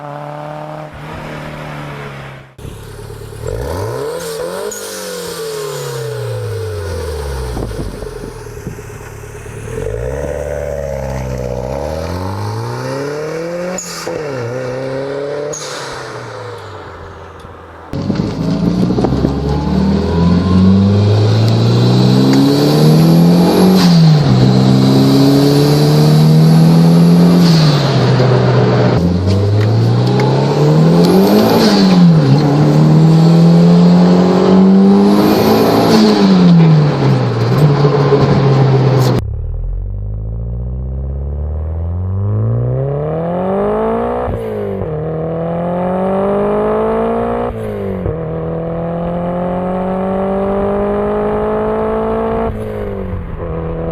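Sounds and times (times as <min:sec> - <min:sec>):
car engine revving: 0:00.0 - 0:53.9.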